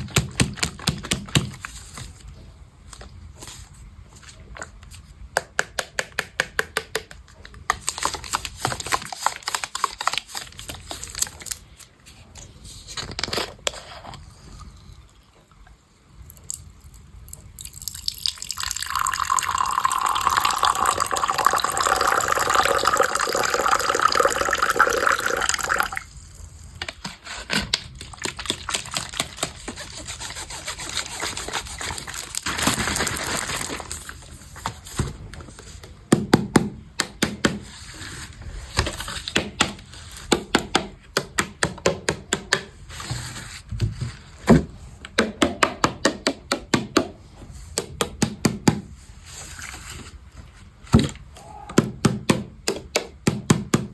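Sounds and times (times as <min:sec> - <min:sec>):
water pouring: 0:17.6 - 0:26.1.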